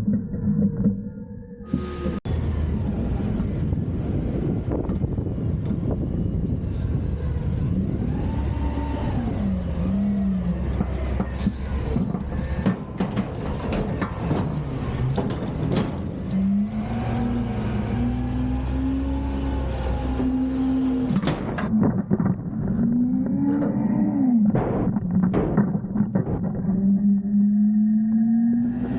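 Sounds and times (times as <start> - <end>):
truck engine revving: 1.7 - 21.2
metal clanks and bangs: 10.7 - 16.3, 21.1 - 27.2.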